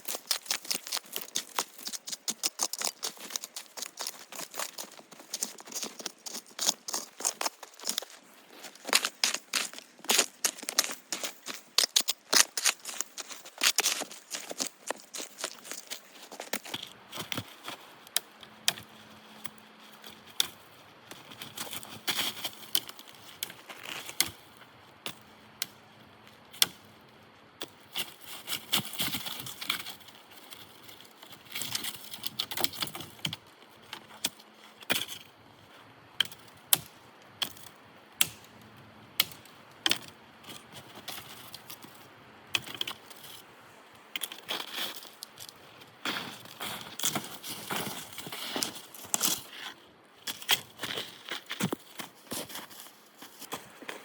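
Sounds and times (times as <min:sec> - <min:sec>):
wood cracking and snapping: 0:00.0 - 0:08.1
rustling and crunching: 0:00.0 - 0:54.0.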